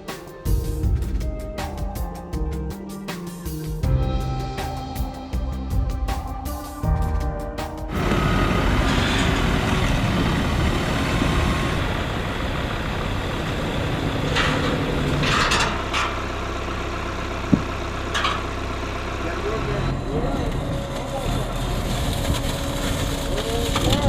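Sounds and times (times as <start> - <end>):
engine rumble: 3.8 - 24.0.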